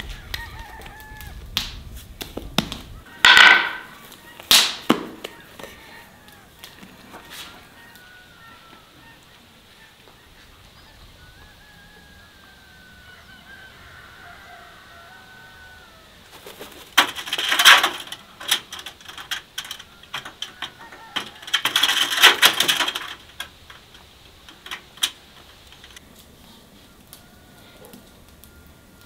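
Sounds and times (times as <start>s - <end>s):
faint thin birdsong: 5.1s - 21.2s
harsh rattling bird chatter: 16.2s - 26.0s.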